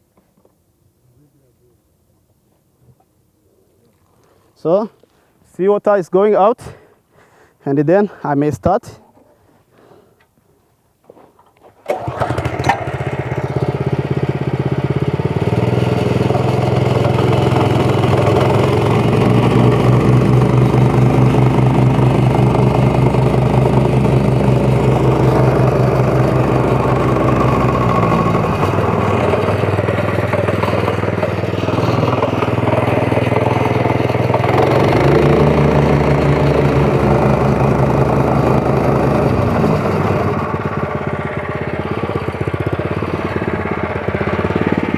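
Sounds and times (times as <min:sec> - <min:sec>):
small petrol engine running: 0:11.8 - 0:44.9.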